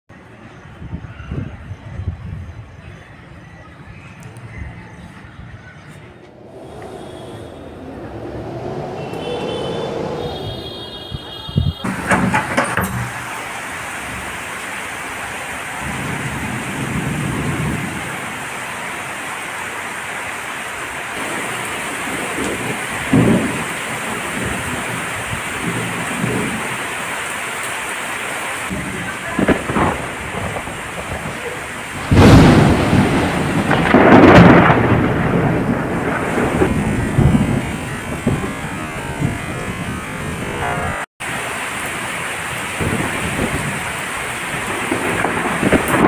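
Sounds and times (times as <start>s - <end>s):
heavy rain: 5.9s - 46.0s
thunder rumbling: 6.2s - 14.4s, 15.7s - 19.4s, 21.1s - 27.2s, 28.7s - 46.0s
loud thunderclap: 15.8s - 18.4s, 21.2s - 26.8s, 28.7s - 41.1s, 42.8s - 46.0s.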